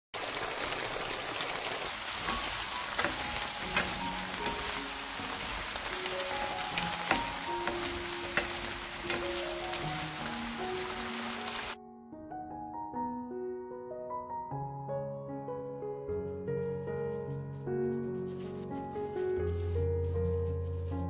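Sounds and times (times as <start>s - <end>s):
food sizzling in frying pan: 1.8s - 11.8s
soft background music: 2.0s - 13.0s, 14.1s - 21.0s
spatula clicking against pan: 2.9s - 6.0s, 6.7s - 9.9s.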